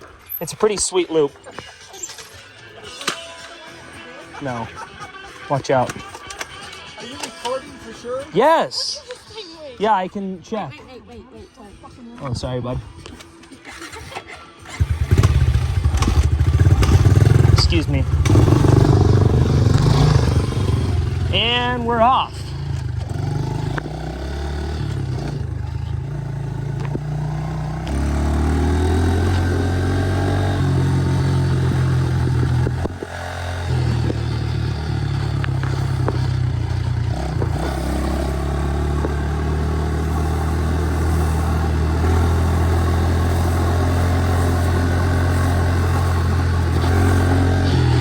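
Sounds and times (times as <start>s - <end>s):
motorbike engine revving: 13.7s - 48.0s.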